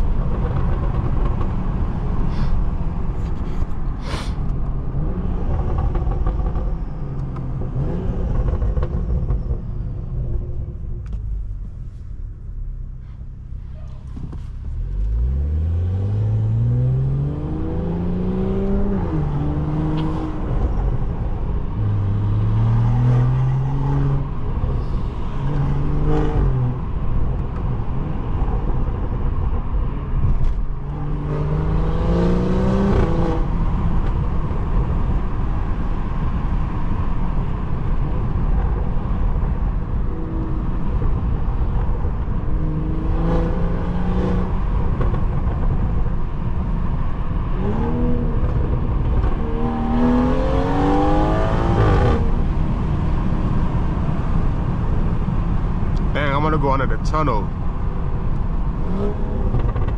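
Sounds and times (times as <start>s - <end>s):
road rumble: 0.0s - 59.9s
car engine accelerating hard: 14.0s - 59.9s.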